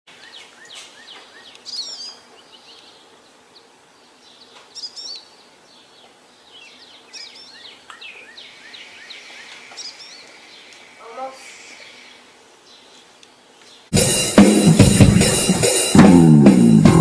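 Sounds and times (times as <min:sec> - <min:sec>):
faint steady hiss: 0:00.1 - 0:17.0
birds chirping and whistling: 0:00.2 - 0:03.1, 0:04.2 - 0:13.9.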